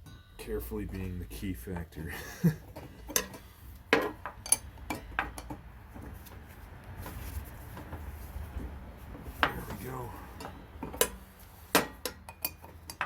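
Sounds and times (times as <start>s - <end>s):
metal wrenches clinking: 0.4s - 5.6s, 9.3s - 13.0s.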